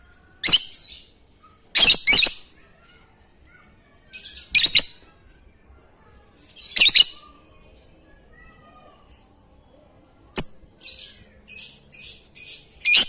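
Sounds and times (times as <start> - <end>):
bird shrill chirping calls: 0.4 - 1.1, 1.8 - 2.5, 4.2 - 5.0, 6.4 - 7.3, 10.4 - 13.0.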